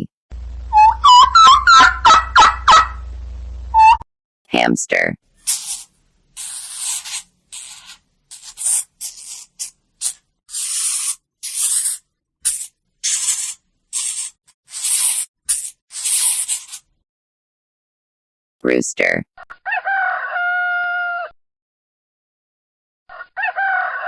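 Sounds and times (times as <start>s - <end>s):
hamster raspy hissy bursts: 5.4s - 16.9s.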